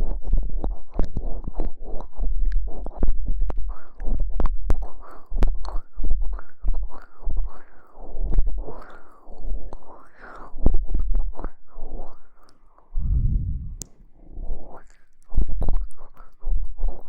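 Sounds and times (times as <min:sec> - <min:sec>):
swishing strokes: 0:13.0 - 0:14.1
low rumble: 0:13.0 - 0:14.4.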